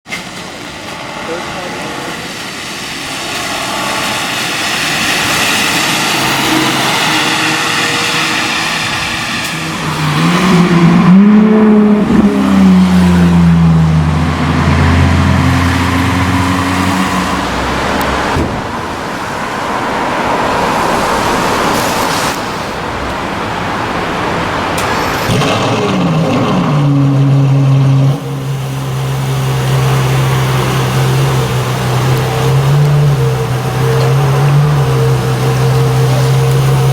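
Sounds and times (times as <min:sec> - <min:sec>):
car engine revving and idling: 0:00.5 - 0:36.9.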